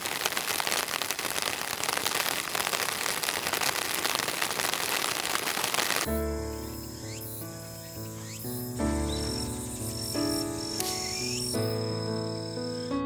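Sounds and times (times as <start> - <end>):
rain falling: 0.0 - 6.1
music: 6.1 - 13.0.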